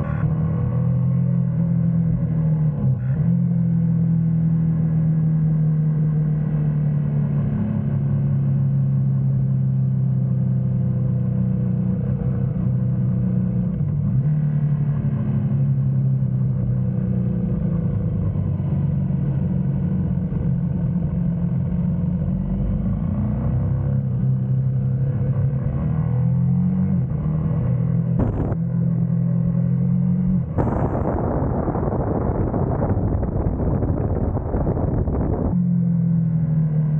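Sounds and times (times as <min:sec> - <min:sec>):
motorcycle engine running: 0:28.0 - 0:29.8, 0:30.4 - 0:35.6.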